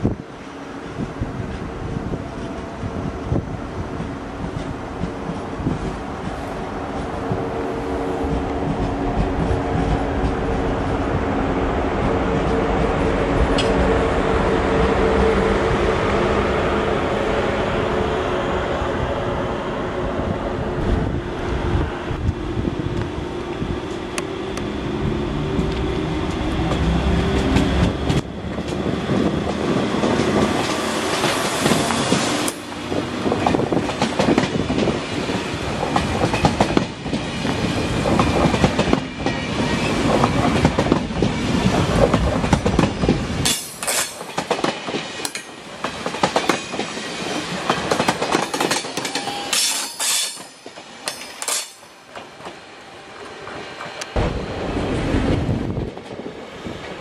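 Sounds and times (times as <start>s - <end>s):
train wheels clacking over rail joints: 26.6s - 52.6s
high wheel squeals: 48.9s - 50.7s.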